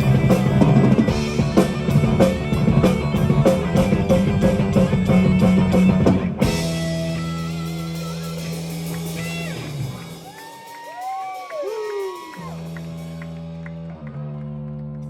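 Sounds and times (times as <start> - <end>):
guitar notes sliding in pitch: 0.0 - 10.5
live metal band playing: 0.0 - 14.0
drums: 0.0 - 14.2.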